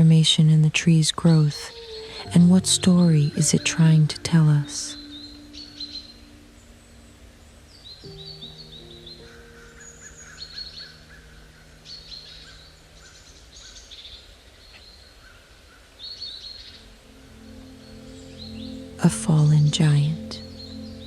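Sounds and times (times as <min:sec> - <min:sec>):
songbirds high chirps: 0:04.6 - 0:21.0
low warbling bird call: 0:16.1 - 0:21.0.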